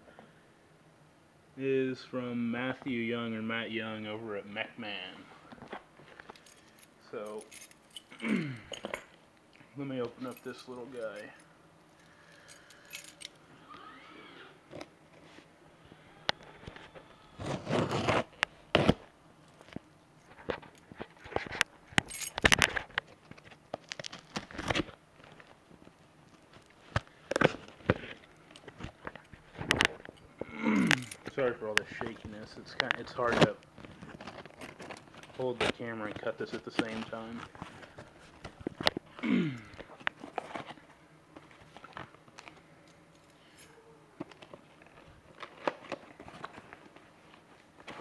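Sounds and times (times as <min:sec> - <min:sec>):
cardboard rustling: 0:16.6 - 0:19.1, 0:31.3 - 0:39.1, 0:39.9 - 0:42.4, 0:44.2 - 0:48.0
cardboard package being cut: 0:17.4 - 0:19.0
cardboard tearing and crinkling: 0:17.4 - 0:19.1, 0:23.8 - 0:25.4.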